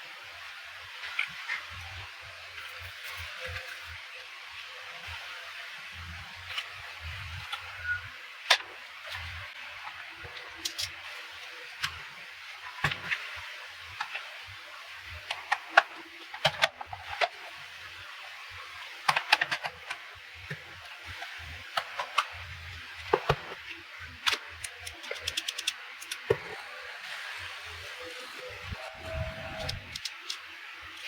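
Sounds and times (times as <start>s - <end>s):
plastic parts clicking and tapping: 10.2s - 11.0s, 15.2s - 17.4s, 19.0s - 22.4s, 23.1s - 26.6s, 29.6s - 31.0s.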